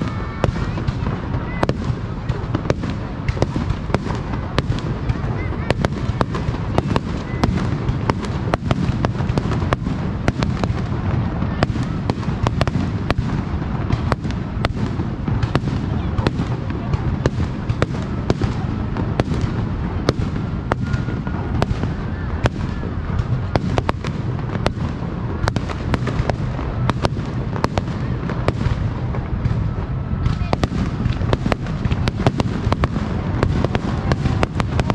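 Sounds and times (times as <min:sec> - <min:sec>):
fireworks bursting: 0:00.0 - 0:34.9
low rumble of booms: 0:00.0 - 0:34.9.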